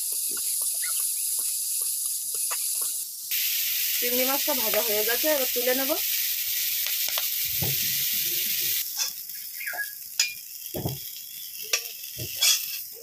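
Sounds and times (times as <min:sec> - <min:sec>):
prawns sizzling in hot oil: 0:00.0 - 0:13.0
metal spatula clinking steel bowl: 0:11.7 - 0:12.8.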